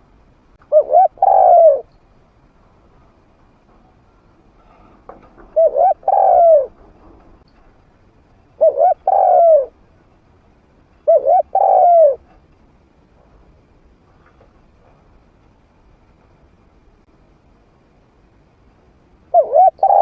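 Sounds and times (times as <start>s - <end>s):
dove cooing: 0.7s - 1.9s, 5.4s - 6.8s, 8.6s - 9.8s, 11.0s - 12.3s, 19.3s - 20.0s.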